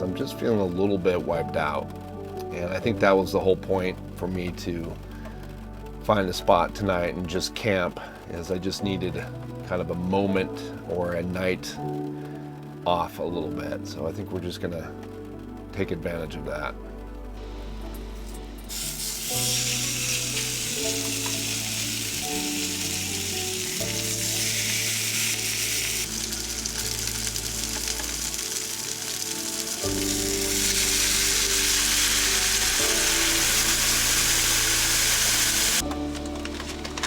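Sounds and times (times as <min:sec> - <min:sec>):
background music: 0:00.0 - 0:37.0
food sizzling in a frying pan: 0:18.0 - 0:35.9.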